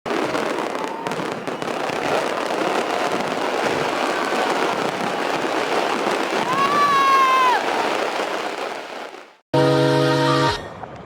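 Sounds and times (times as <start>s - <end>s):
fireworks crackling: 0.1s - 9.4s
faint firework whistles: 0.2s - 5.0s.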